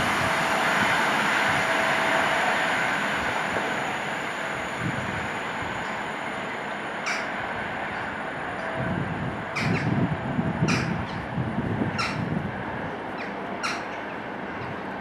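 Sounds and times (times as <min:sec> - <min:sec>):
train wheels rumbling: 0:00.0 - 0:15.0
harsh bird calls: 0:09.6 - 0:10.0, 0:13.2 - 0:14.2.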